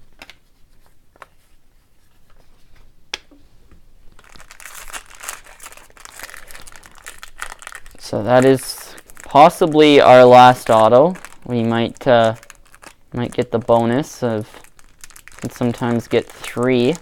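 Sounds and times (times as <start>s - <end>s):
foil wrapper crinkling: 4.2s - 17.0s.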